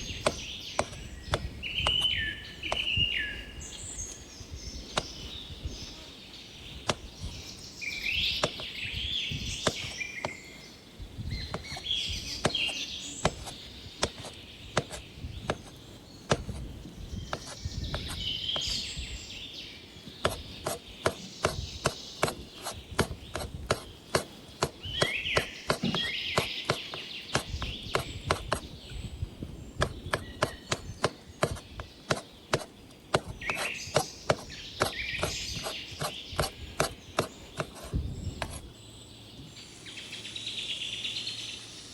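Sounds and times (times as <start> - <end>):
birds chirping: 0.0 - 41.9
knife chopping on cutting board: 11.5 - 15.7, 16.3 - 16.6, 20.2 - 28.7, 29.8 - 38.6.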